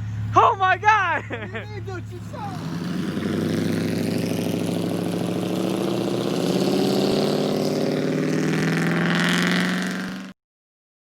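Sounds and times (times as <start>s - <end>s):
vehicle engine running: 0.0s - 10.3s.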